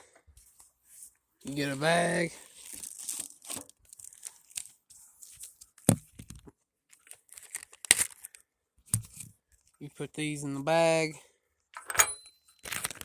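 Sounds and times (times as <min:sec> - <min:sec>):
plastic bag crinkling: 0:02.3 - 0:05.8, 0:06.9 - 0:08.4, 0:12.6 - 0:13.0.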